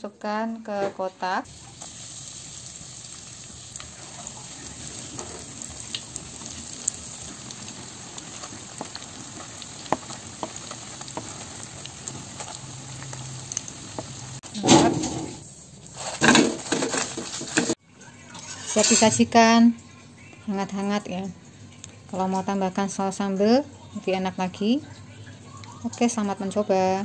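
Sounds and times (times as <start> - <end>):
food sizzling in hot oil: 1.4 - 19.5.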